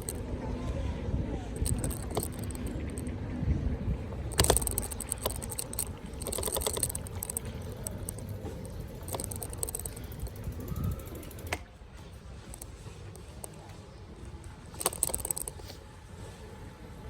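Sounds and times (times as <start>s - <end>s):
bicycle freewheel clicking: 0.0s - 0.2s, 1.6s - 3.1s, 4.2s - 11.6s, 14.8s - 15.6s
road rumble: 0.0s - 17.0s.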